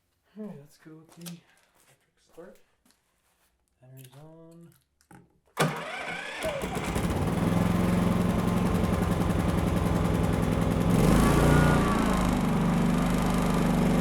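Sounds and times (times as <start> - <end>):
small generator engine running: 5.6 - 14.0.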